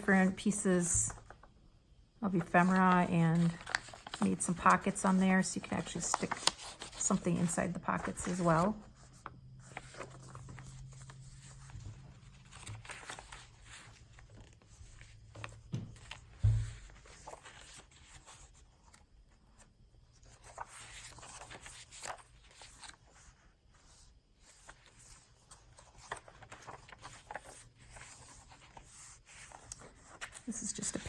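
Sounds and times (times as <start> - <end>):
paper rustling: 2.4 - 31.0
soft low thump: 15.7 - 16.8.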